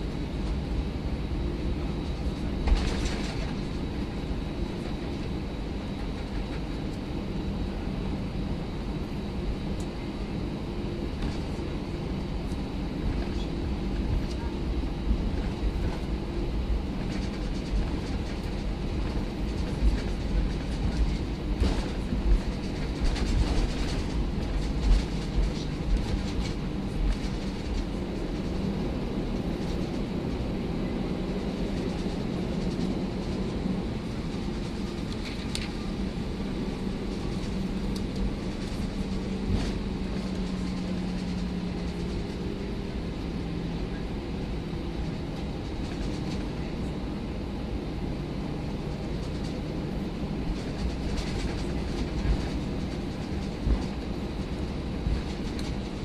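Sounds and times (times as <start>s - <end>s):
jet engine cabin hum: 0.0s - 56.0s.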